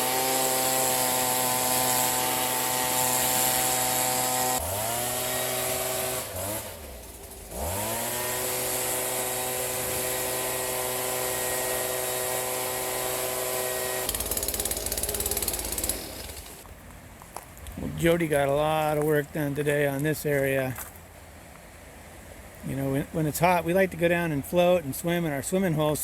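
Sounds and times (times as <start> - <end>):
two-stroke yard tool engine revving: 0.0 - 16.6
rapid rattling clicking: 14.1 - 16.6.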